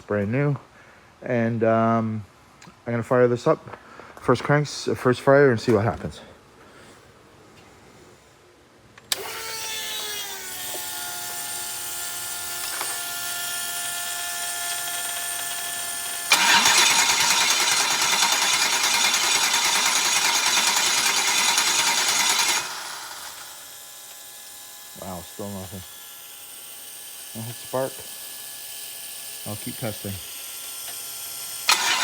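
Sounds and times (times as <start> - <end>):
starter motor whine: 14.7 - 23.8, 31.6 - 32.0
engine cranking: 16.3 - 23.5, 31.7 - 32.0.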